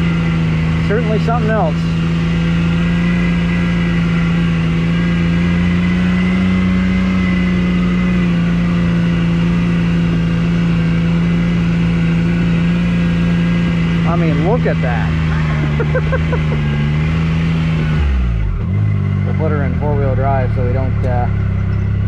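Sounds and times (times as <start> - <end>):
atv engine idling: 18.4 - 22.0.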